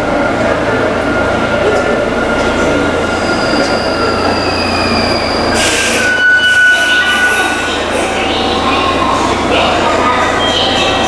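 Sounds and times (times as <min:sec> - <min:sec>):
train wheels squealing: 0:03.1 - 0:08.9.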